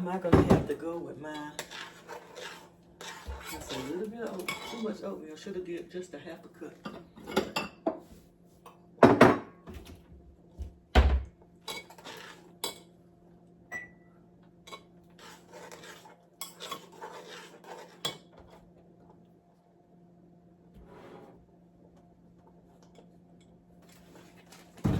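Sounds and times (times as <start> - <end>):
utensils clinking and scraping: 1.3 - 5.1, 11.7 - 12.9, 14.7 - 18.6
pots and dishes clanking: 6.8 - 8.0.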